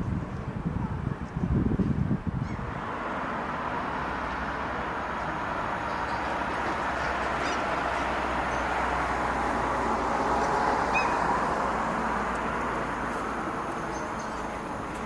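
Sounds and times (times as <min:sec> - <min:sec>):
electric train rumbling past: 0:02.7 - 0:15.0.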